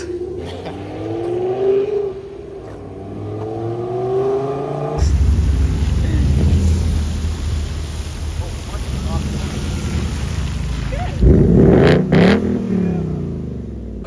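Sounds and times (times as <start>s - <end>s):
car engine accelerating: 0.0s - 14.0s
loud steady low rumble: 5.0s - 14.0s.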